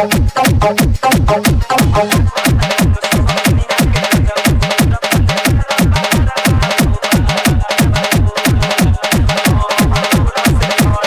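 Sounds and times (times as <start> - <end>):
electronic dance music: 0.0 - 11.0
pounding kick drum: 0.0 - 11.0.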